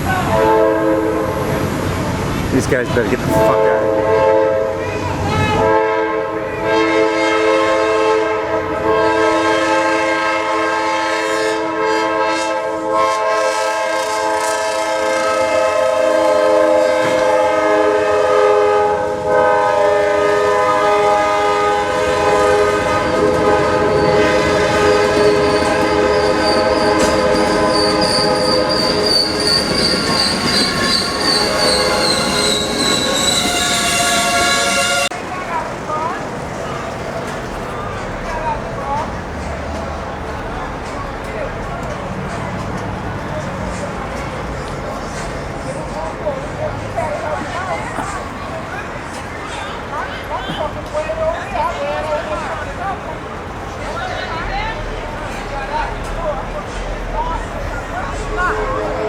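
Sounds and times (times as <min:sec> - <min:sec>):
train horn chord: 0:00.3 - 0:01.4, 0:03.5 - 0:29.1, 0:30.8 - 0:35.2
steel wheel squeal: 0:23.0 - 0:35.1.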